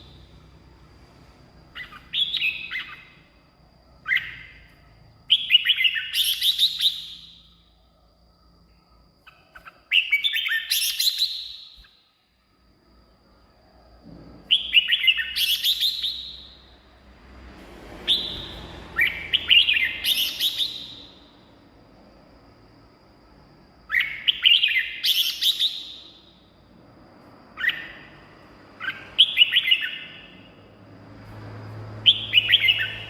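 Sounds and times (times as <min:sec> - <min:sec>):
bird singing whistled phrases: 0:01.7 - 0:03.1, 0:05.3 - 0:07.5, 0:09.6 - 0:11.9, 0:14.5 - 0:16.6, 0:18.1 - 0:21.2, 0:23.9 - 0:26.3, 0:27.6 - 0:28.2, 0:28.8 - 0:30.4, 0:32.1 - 0:33.0.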